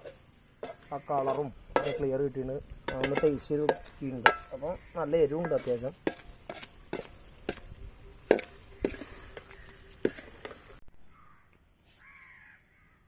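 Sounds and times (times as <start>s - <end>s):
spoon knocking against pan: 0.0s - 2.1s, 2.8s - 10.6s.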